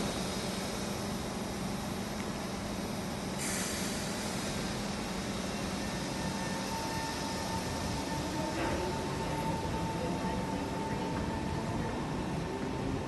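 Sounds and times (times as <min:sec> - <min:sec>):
hiss: 0:00.0 - 0:09.7
metro train running on rails: 0:00.0 - 0:13.0
steady train whine: 0:00.0 - 0:13.0.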